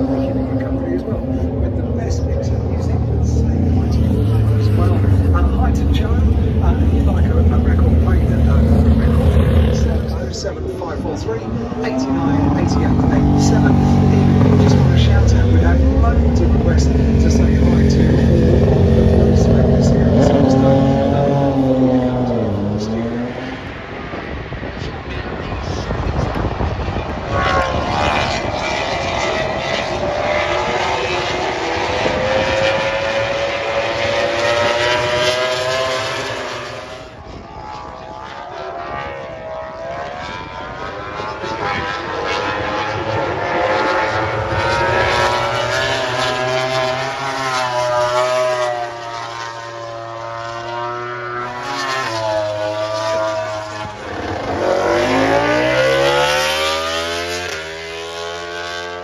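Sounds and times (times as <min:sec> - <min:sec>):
loud engine running: 0:00.0 - 0:23.0.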